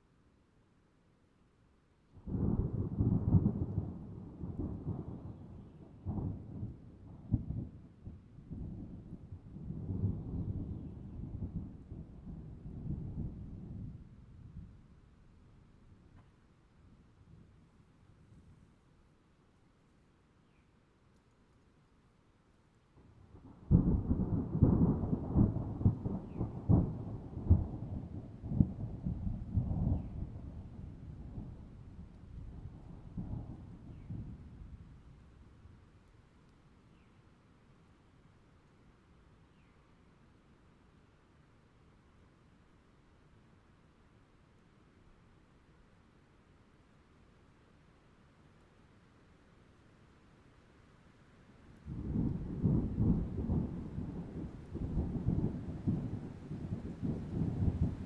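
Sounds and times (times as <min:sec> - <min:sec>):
thunder rumbling: 0:23.4 - 0:34.9, 0:51.9 - 0:58.0.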